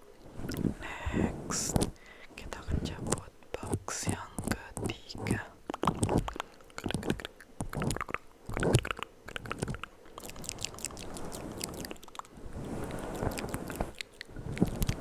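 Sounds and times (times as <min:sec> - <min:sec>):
wet mouth clicks and smacking: 0:03.0 - 0:15.0.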